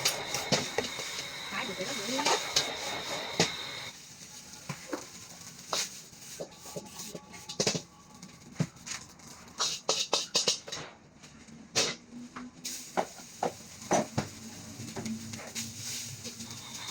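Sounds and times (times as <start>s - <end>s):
metal spatula scraping a wok: 9.4s - 10.9s.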